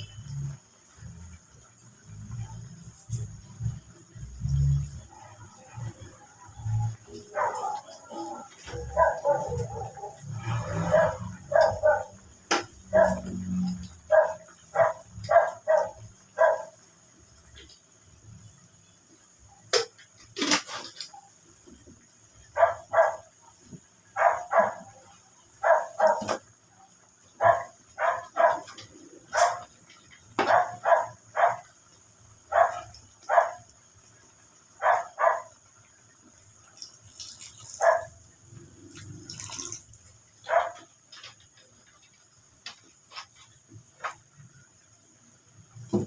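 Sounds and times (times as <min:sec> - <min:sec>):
dog barking: 0:07.2 - 0:12.2, 0:12.9 - 0:13.4, 0:14.1 - 0:16.8, 0:22.5 - 0:23.3, 0:24.1 - 0:25.0, 0:25.6 - 0:26.4, 0:27.4 - 0:29.7, 0:30.4 - 0:31.7, 0:32.5 - 0:33.7, 0:34.8 - 0:35.6, 0:37.7 - 0:38.2, 0:40.4 - 0:40.9.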